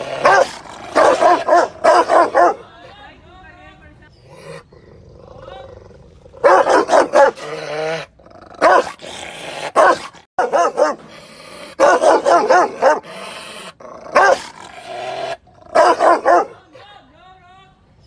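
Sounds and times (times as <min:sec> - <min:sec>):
dog barking aggressively: 0:00.0 - 0:02.6, 0:06.4 - 0:13.2, 0:13.9 - 0:16.6.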